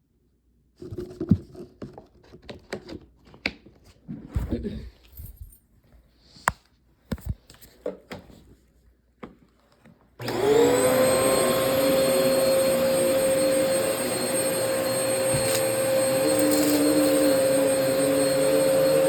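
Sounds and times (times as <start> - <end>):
vacuum cleaner running: 10.2 - 19.0.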